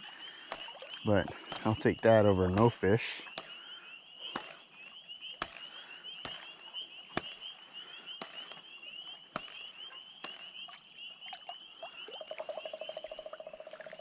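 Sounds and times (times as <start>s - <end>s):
woodpecker tapping on wood: 0.4s - 10.8s.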